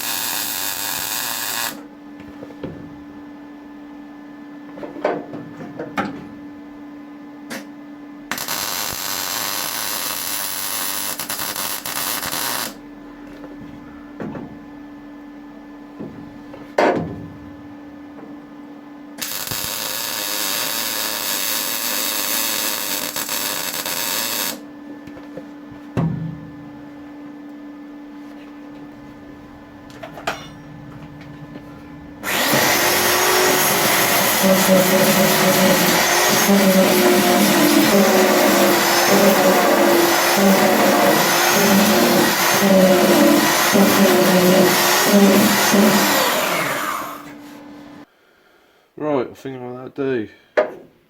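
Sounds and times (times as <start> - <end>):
welder hissing: 0.0 - 1.8, 8.3 - 12.8, 19.2 - 24.6, 32.2 - 47.6
steady hum: 24.6 - 45.6.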